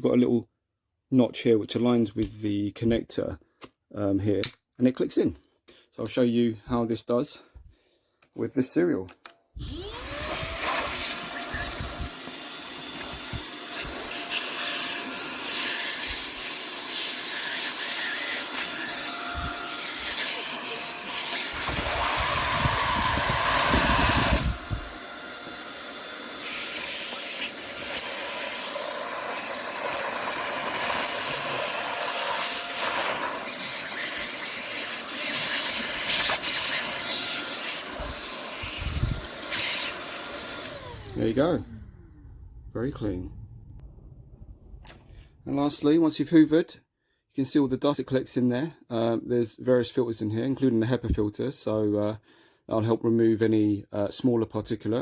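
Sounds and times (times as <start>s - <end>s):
vacuum cleaner whining and sucking: 9.6s - 42.5s.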